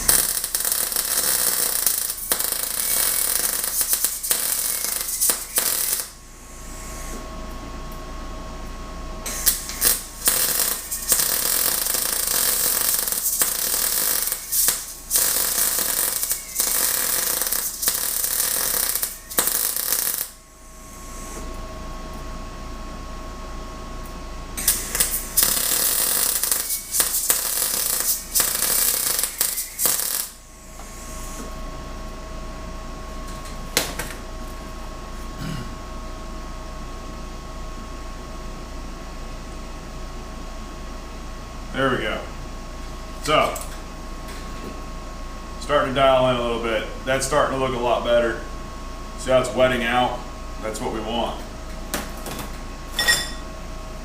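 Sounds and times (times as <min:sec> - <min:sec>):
welding arc crackling: 0:00.0 - 0:06.2, 0:09.3 - 0:20.4, 0:24.6 - 0:31.4
welding machine hum: 0:00.0 - 0:35.3.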